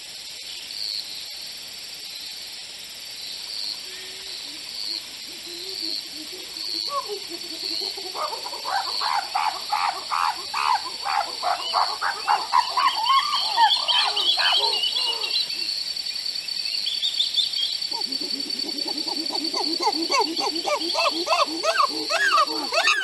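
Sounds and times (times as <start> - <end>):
animal chirps: 5.6 - 15.7, 17.6 - 23.0.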